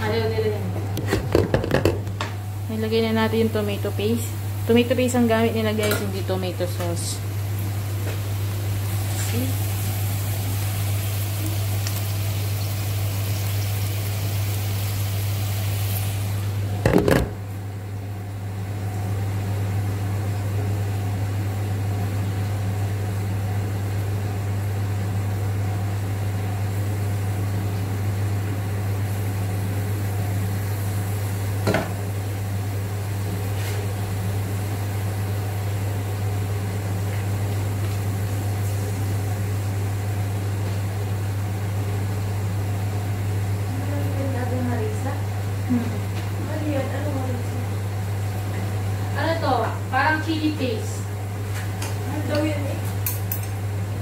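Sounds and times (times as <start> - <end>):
low electrical hum: 0.0 - 54.0
paste sizzling in hot oil: 8.7 - 16.6.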